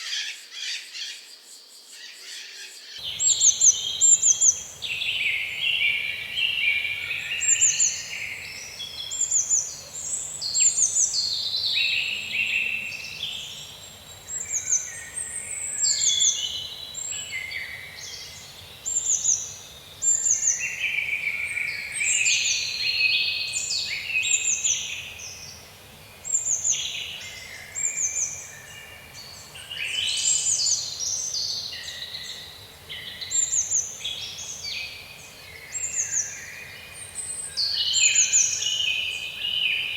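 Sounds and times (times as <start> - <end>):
birds chirping and trilling: 1.9 - 25.1.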